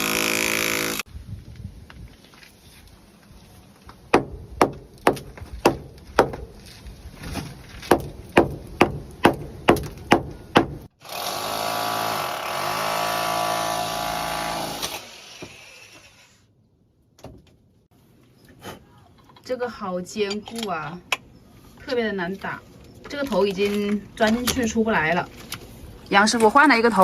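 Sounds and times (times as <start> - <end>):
rotary hammer drilling: 0.0 - 1.1, 11.0 - 16.4
hammer striking masonry: 4.1 - 6.5, 7.9 - 10.9.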